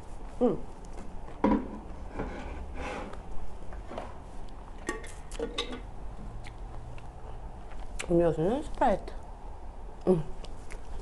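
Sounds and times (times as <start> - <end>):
wet chewing: 6.4 - 8.1.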